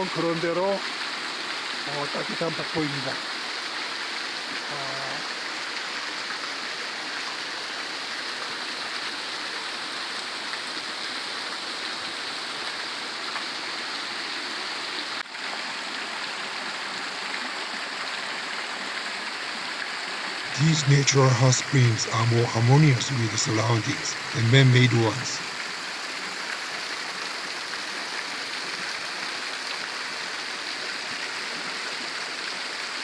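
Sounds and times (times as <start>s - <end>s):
waterfall pouring onto rocks: 25.4s - 33.0s.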